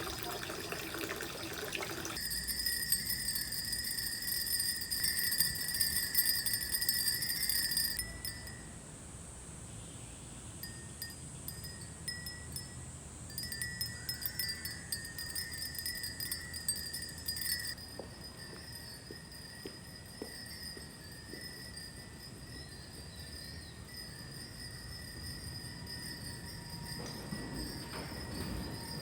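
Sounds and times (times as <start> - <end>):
high bell-like chimes tinkling: 2.0 - 8.8, 10.6 - 29.0.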